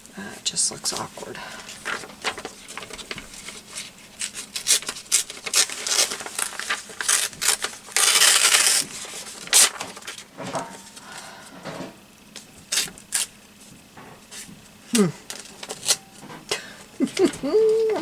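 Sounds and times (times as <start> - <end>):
paper rustling: 1.0 - 10.3.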